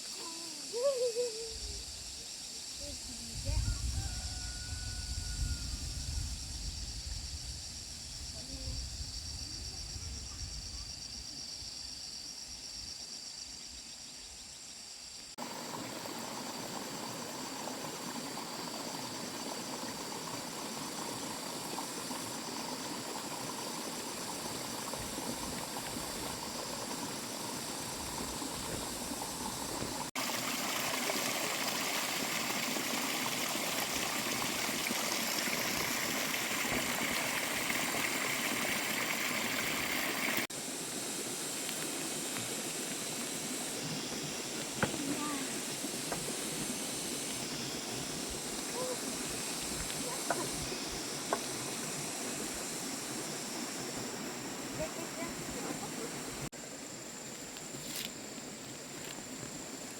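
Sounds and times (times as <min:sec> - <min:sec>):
water rushing: 0:15.4 - 0:40.5, 0:44.2 - 0:56.5.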